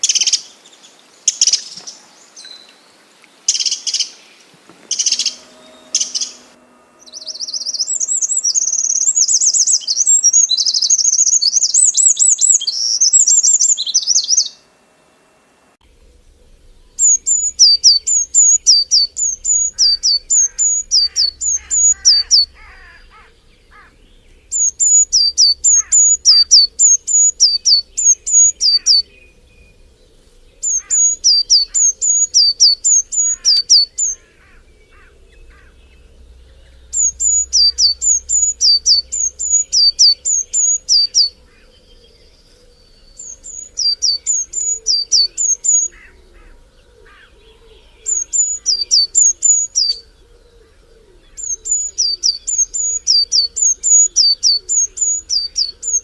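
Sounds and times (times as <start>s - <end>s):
bird two-note call: 4.9s - 9.7s.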